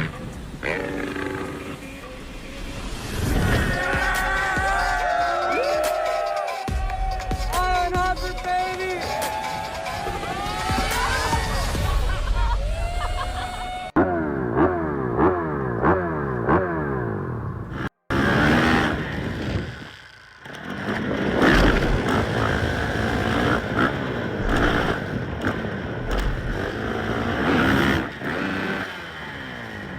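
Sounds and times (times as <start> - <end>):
dirt bike engine revving: 0.0 - 6.3, 13.4 - 29.9.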